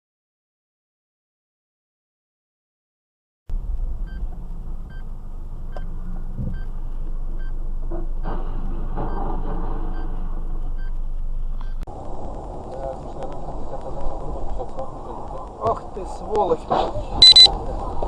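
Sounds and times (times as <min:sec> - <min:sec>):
vehicle low rumble: 0:03.5 - 0:18.0
short electronic beeps: 0:04.0 - 0:04.3, 0:04.9 - 0:05.1, 0:17.2 - 0:17.5.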